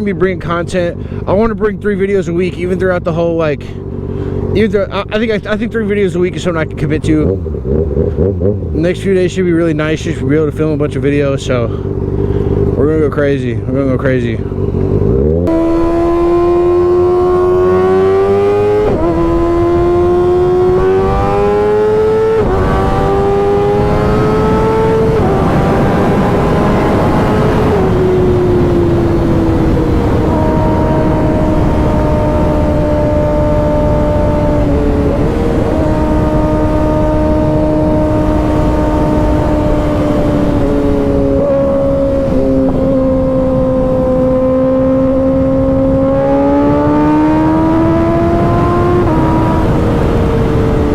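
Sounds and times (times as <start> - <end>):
motorcycle engine accelerating: 2.8 - 50.9
wind noise: 14.9 - 50.9.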